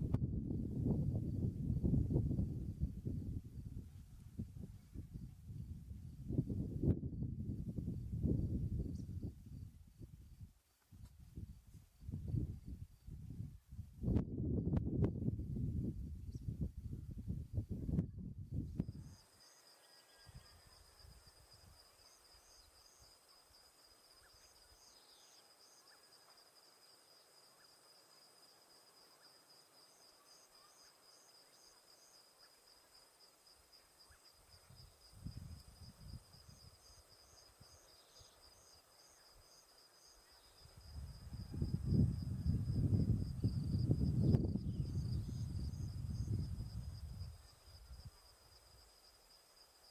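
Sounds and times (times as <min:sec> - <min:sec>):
low wind rumble: 0:00.0 - 0:19.1, 0:34.6 - 0:37.6, 0:40.6 - 0:48.3
pulsing insect trill: 0:18.8 - 0:49.9.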